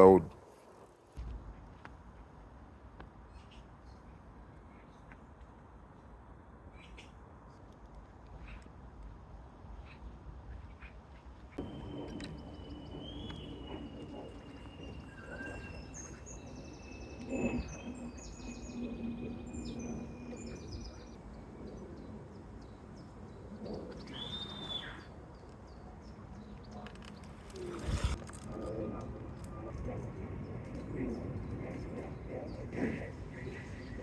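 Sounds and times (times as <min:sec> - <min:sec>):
birds chirping: 0:11.6 - 0:28.2.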